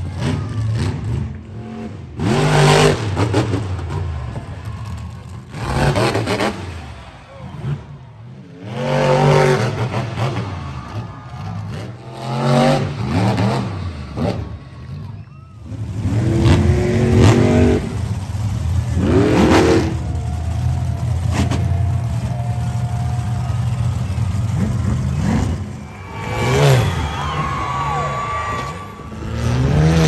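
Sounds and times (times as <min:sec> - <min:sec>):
monster truck engine revving: 0:00.0 - 0:30.0.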